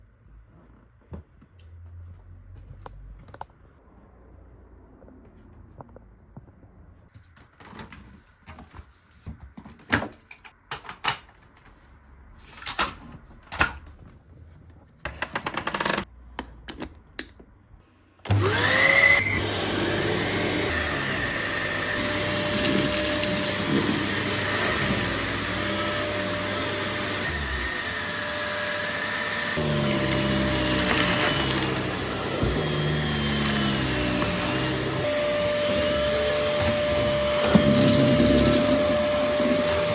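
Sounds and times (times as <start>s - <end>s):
vacuum cleaner motor whining: 18.3s - 39.9s.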